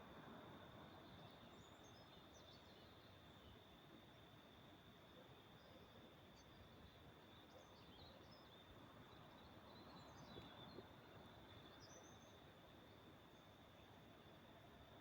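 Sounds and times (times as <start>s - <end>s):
faint distant birds chirping: 0.0s - 15.0s.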